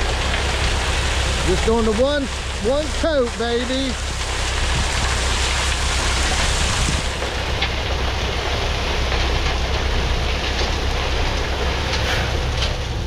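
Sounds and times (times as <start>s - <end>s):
diesel engine running: 0.0s - 13.0s
gravel pouring from truck bed: 0.0s - 13.0s.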